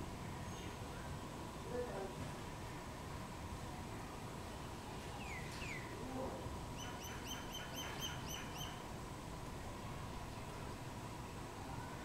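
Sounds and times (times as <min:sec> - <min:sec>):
outdoor background hiss: 0:00.0 - 0:12.0
bird calling: 0:06.8 - 0:08.8.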